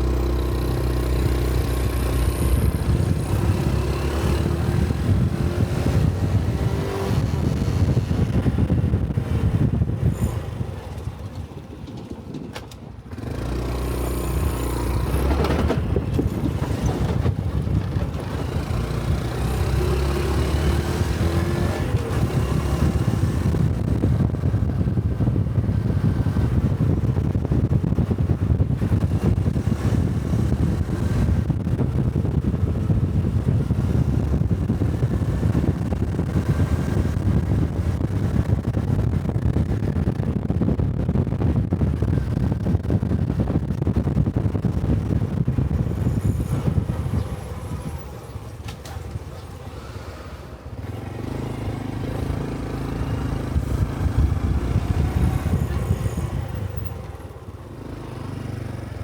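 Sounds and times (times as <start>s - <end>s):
motorcycle engine revving: 0.0s - 11.7s, 13.1s - 59.0s
wind noise: 0.0s - 59.0s.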